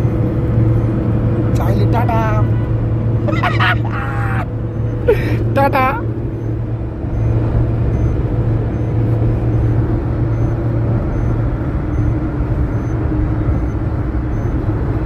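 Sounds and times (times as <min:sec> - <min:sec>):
car engine rumbling: 0:00.0 - 0:15.0.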